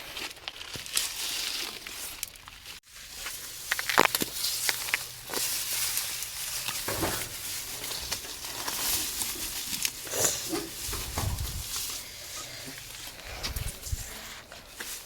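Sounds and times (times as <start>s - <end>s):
brush rustling and snapping: 0.0s - 15.0s
low rumble: 10.9s - 12.0s.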